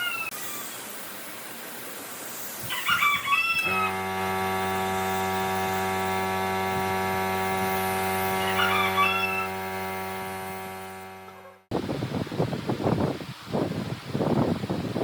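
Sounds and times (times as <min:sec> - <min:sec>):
bird wavering cries: 0:00.0 - 0:00.7, 0:08.4 - 0:09.6
steady hum of level tones: 0:03.6 - 0:11.7.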